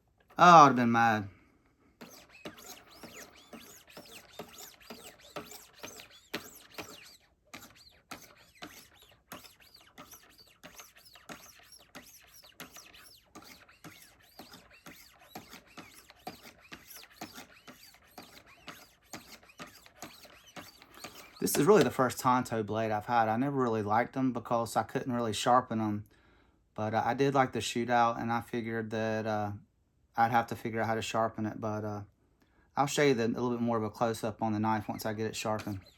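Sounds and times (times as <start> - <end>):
sharpening stones scraping knife edge: 2.0 - 21.8.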